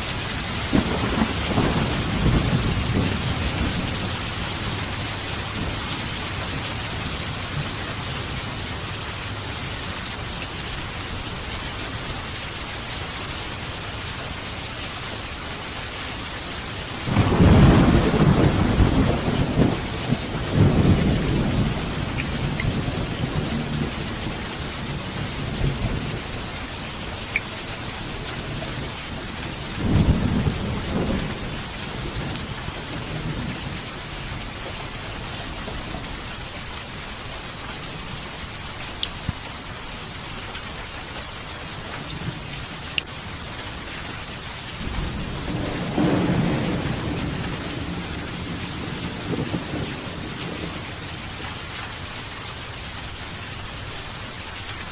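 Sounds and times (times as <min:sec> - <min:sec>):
thunder rumbling low: 0:00.0 - 0:09.2, 0:16.9 - 0:36.2, 0:44.8 - 0:51.4
steady rain falling: 0:00.0 - 0:54.9.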